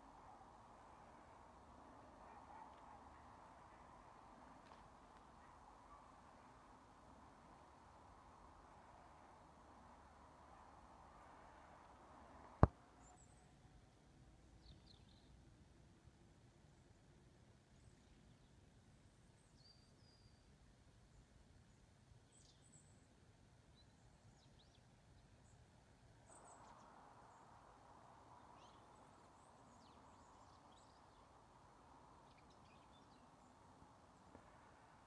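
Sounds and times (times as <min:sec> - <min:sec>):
faint steady rushing noise: 0:00.0 - 0:13.0, 0:25.5 - 0:35.0
small birds chirping faintly: 0:00.0 - 0:35.0.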